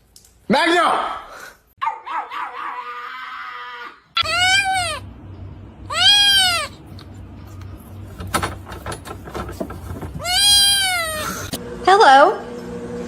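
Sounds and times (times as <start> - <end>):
cat meowing: 4.2 - 5.1, 5.9 - 6.8, 10.2 - 11.5.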